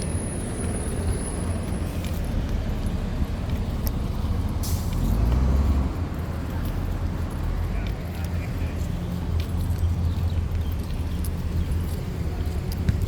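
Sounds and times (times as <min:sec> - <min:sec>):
vehicle passing close: 0:00.0 - 0:07.9
road traffic rumble: 0:00.0 - 0:13.0.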